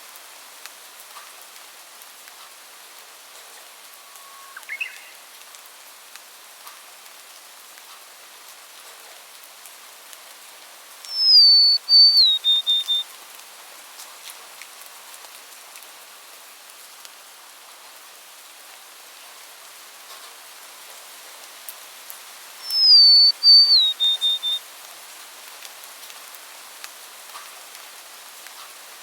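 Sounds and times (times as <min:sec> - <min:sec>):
rain hissing: 0:00.0 - 0:08.8, 0:09.5 - 0:29.0
songbird whistling: 0:04.0 - 0:05.2, 0:11.1 - 0:13.1, 0:22.6 - 0:24.6.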